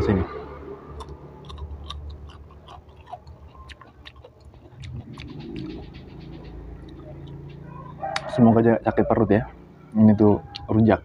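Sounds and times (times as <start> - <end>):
crunching and chewing a bean: 1.0 - 6.2.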